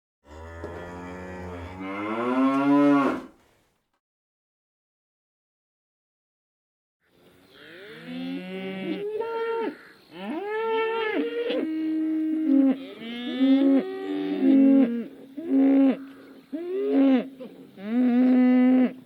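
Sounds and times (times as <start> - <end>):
cattle mooing: 0.3 - 3.4.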